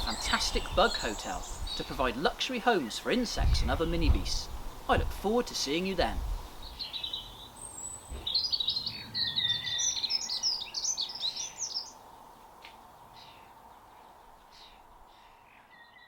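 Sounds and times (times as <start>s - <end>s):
songbird singing high notes: 0.0s - 12.0s
outdoor background hiss: 0.0s - 16.0s
scattered bird calls: 0.0s - 16.0s.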